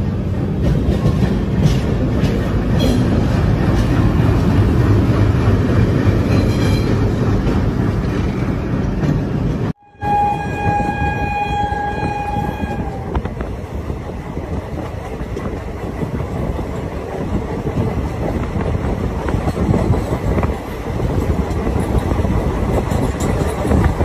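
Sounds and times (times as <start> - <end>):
train rumble and clatter: 0.0 - 24.0
locomotive horn blast: 9.8 - 13.2.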